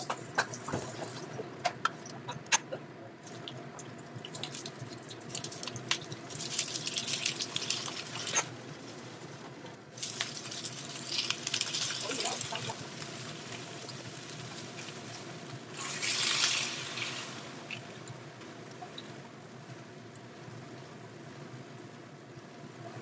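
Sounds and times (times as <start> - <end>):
hot oil sizzling in a wok: 4.2 - 9.2, 9.9 - 19.7.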